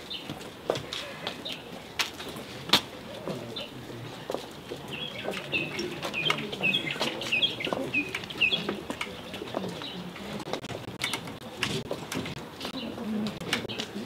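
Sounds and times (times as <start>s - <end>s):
bird chirping: 3.4s - 11.2s.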